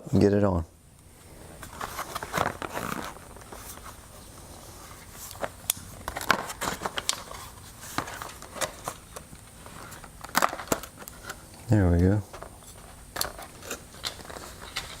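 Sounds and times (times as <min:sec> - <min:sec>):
packaging crinkling: 0:01.6 - 0:04.3, 0:05.0 - 0:11.5, 0:12.3 - 0:15.0.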